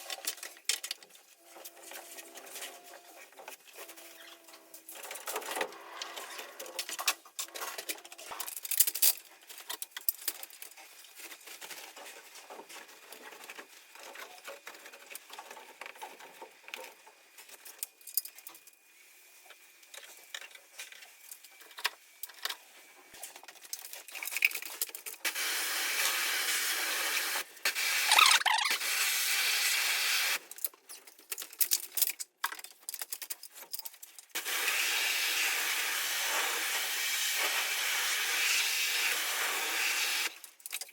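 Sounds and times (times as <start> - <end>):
parts clicking and knocking: 0.0 - 1.8, 30.4 - 34.4.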